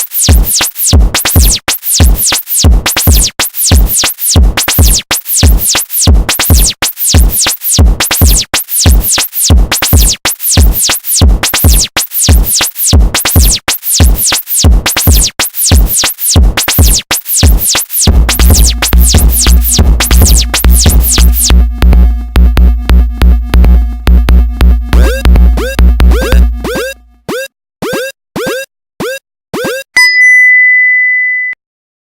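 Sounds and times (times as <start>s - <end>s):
sweeping synth zaps: 0.0s - 21.5s
drum machine beat: 0.0s - 29.9s
heavy pulsing bass: 18.1s - 27.2s.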